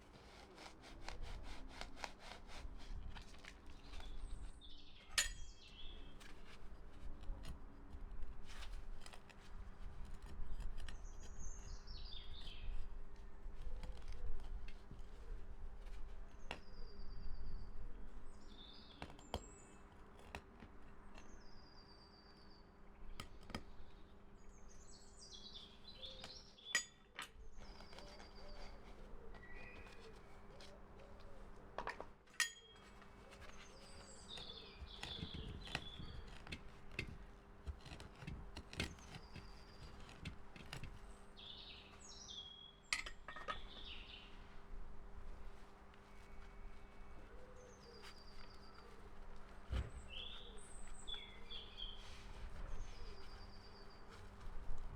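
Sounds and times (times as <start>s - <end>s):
birds twittering: 23.8s - 31.6s, 32.4s - 36.6s, 41.0s - 44.5s, 46.0s - 54.5s.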